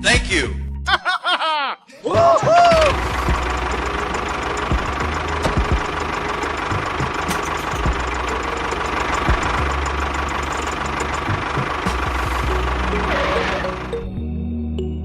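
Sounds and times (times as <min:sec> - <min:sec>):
engine running with rapid knocking: 0:02.7 - 0:14.0.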